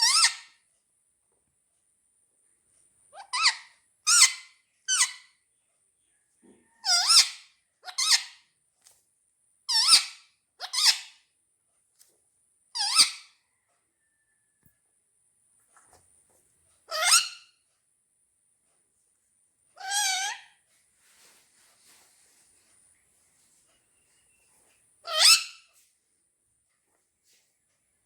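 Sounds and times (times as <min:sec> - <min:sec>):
parrots squawking: 0:00.0 - 0:00.5, 0:03.2 - 0:05.2, 0:06.8 - 0:08.4, 0:09.7 - 0:11.1, 0:12.8 - 0:13.3, 0:16.9 - 0:17.4, 0:19.8 - 0:20.5, 0:25.0 - 0:25.6.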